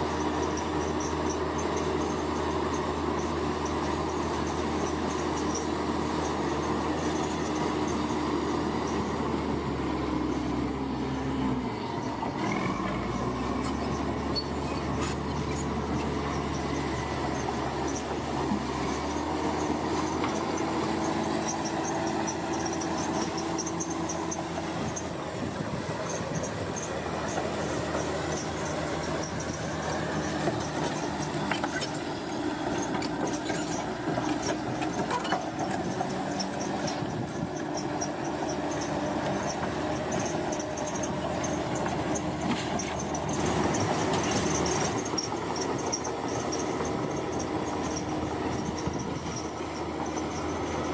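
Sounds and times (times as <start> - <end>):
bulldozer diesel engine: 0.0 - 50.9
steel tracks squealing and clattering: 0.0 - 50.9.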